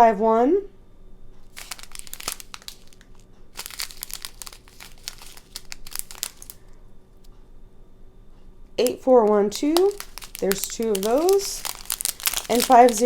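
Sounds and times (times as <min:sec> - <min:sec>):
plastic bags crinkling: 0:01.5 - 0:06.8, 0:08.8 - 0:13.0.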